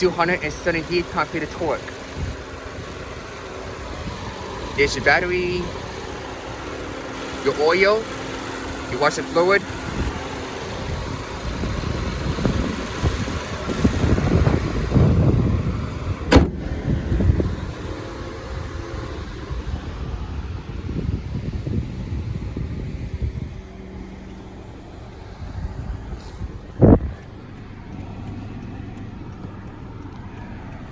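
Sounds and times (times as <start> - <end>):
car engine idling: 0.0 - 30.9
sharp knock: 16.3 - 16.6.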